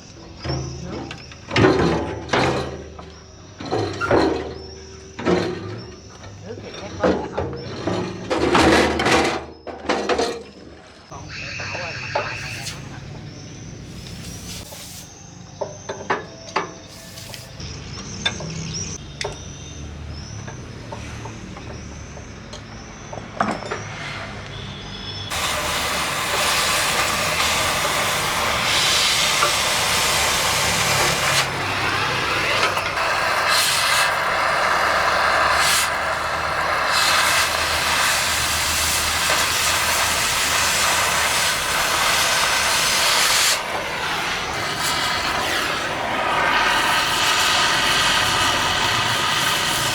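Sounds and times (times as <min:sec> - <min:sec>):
cutting torch flame hissing: 0:11.1 - 0:15.3, 0:16.9 - 0:17.7, 0:25.3 - 0:49.9.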